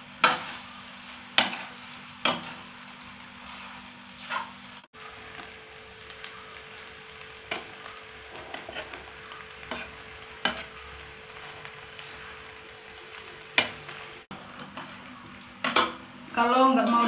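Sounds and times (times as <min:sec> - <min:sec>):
food sizzling in a frying pan: 0:00.0 - 0:17.0
metal spatula scraping a pan: 0:00.1 - 0:02.8, 0:03.4 - 0:04.8, 0:07.4 - 0:12.5.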